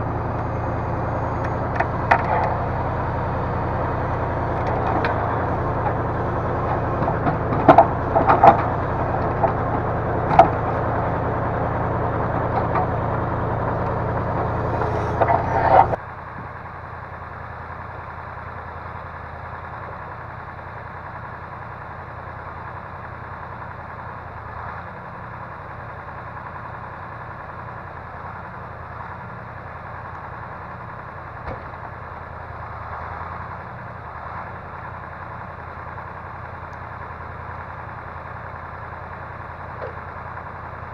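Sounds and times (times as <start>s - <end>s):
crane engine running: 0.0s - 40.9s
sharp knocks and clanks: 4.3s - 11.2s, 12.3s - 16.0s.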